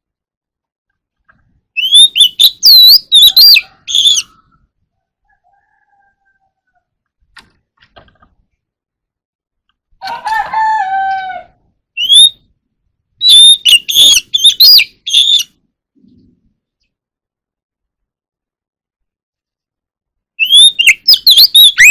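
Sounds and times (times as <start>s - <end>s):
bird singing whistle and notes: 1.8s - 4.4s, 12.0s - 12.5s, 13.2s - 15.6s, 20.4s - 21.9s
low crow-like call: 10.0s - 11.6s.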